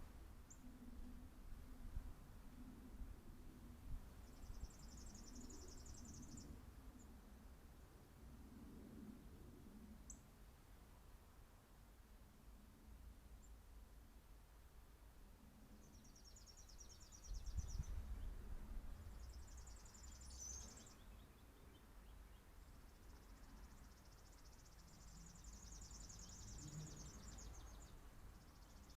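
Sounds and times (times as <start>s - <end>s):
faint songbirds calling: 0.4s - 1.1s, 4.1s - 8.0s, 9.8s - 10.3s, 15.4s - 29.0s.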